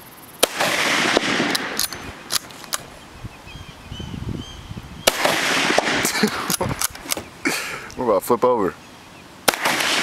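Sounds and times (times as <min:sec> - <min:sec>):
rifle shot with echo: 0:00.4 - 0:02.5, 0:05.0 - 0:06.2, 0:09.4 - 0:10.0
sharp rifle bolt clicks: 0:01.2 - 0:02.9, 0:06.4 - 0:07.3.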